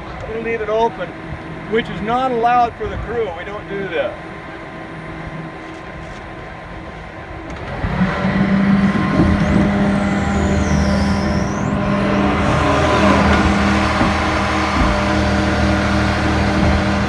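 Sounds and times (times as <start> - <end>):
excavator diesel engine running: 7.9 - 17.0.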